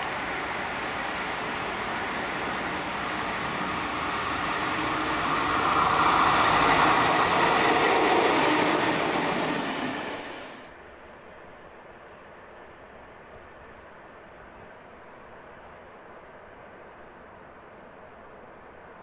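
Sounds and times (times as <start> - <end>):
train wheels rumbling on rails: 0.0 - 10.7.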